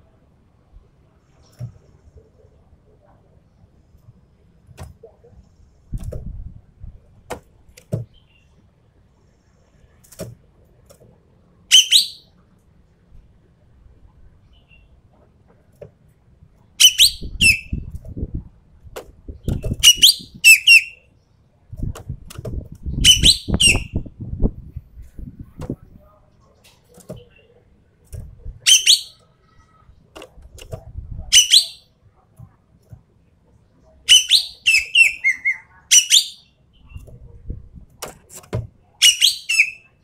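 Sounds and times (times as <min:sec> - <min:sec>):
bird giving harsh calls: 0:34.1 - 0:36.5.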